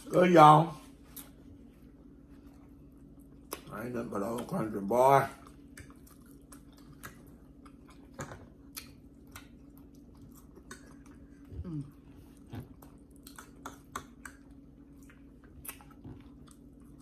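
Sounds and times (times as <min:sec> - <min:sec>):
faint steady hum: 0:00.0 - 0:17.0
people chewing: 0:00.8 - 0:17.0
wet mouth clicks and smacks: 0:13.1 - 0:14.6.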